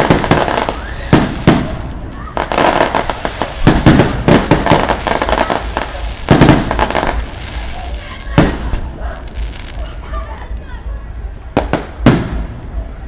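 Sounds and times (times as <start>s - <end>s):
loud firecracker bang: 0.0s - 9.8s, 11.6s - 12.7s
firecrackers popping: 0.0s - 10.7s, 11.5s - 12.8s.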